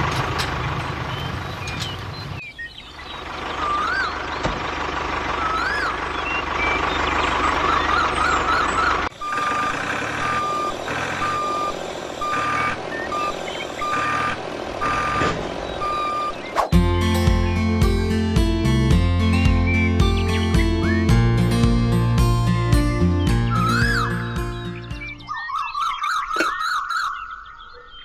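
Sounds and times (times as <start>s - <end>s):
vehicle running noise: 0.0s - 25.3s
truck reversing alarm beeping: 2.1s - 16.6s.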